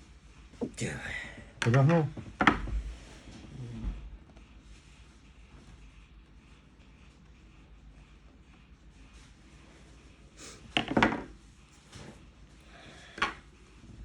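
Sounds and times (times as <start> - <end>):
hard objects clattering on workbench: 10.7 - 11.4.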